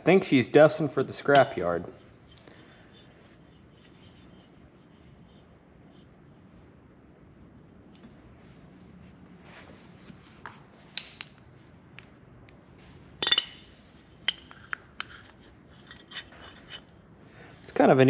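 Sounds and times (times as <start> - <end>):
metal parts clinking together: 13.2 - 16.9.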